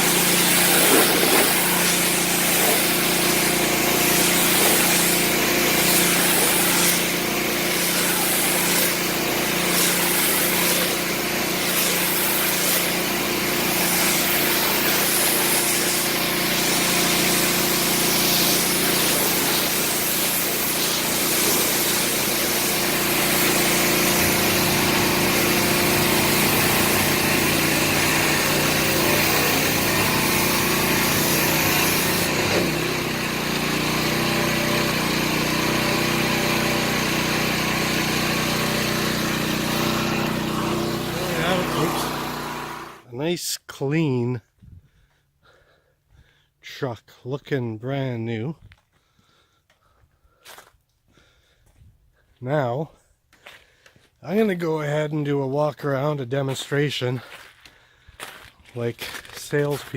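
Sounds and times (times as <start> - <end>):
hiss: 0.0 - 32.3
engine running steadily: 0.0 - 34.0, 34.6 - 43.0.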